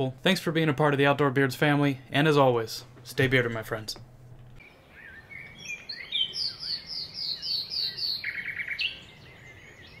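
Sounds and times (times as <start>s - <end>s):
songbirds singing: 2.6s - 10.0s.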